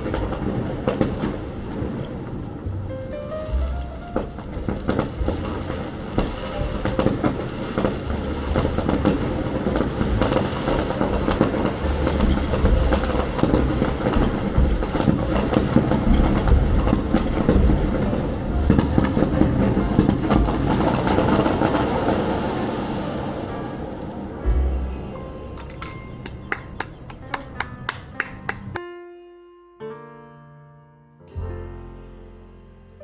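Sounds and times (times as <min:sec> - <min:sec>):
fireworks crackling and popping: 0:00.0 - 0:25.0
low fireworks booms: 0:00.0 - 0:28.8.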